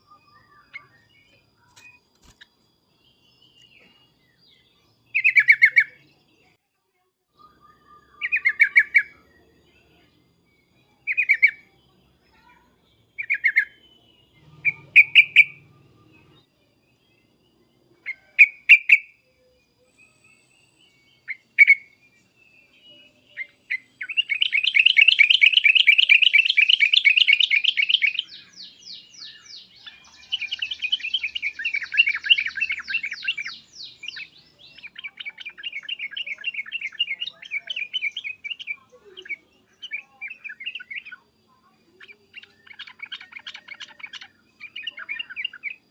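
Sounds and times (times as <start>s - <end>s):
bird chattering calls: 41.9s - 45.8s.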